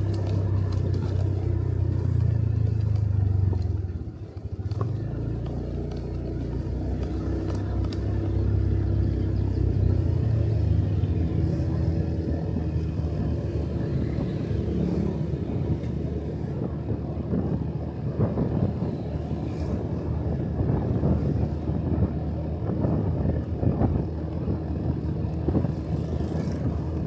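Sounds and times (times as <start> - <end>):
motorcycle engine running: 0.0 - 27.0
road and wind noise: 0.0 - 27.0.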